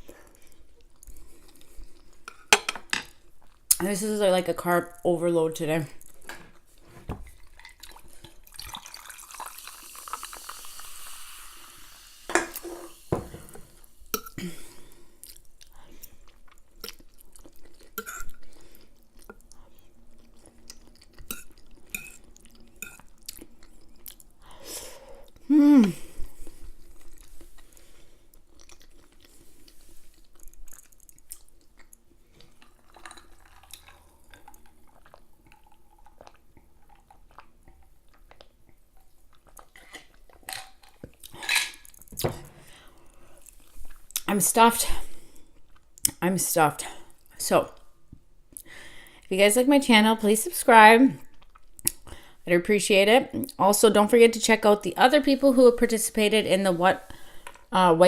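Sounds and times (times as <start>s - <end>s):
person chewing food: 0.0s - 3.8s, 6.0s - 11.2s, 13.5s - 44.3s, 45.2s - 46.2s, 51.2s - 52.3s.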